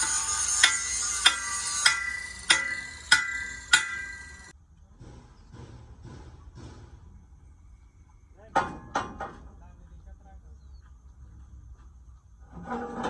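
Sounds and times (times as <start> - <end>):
hammer blows on steel: 0.0 - 7.5.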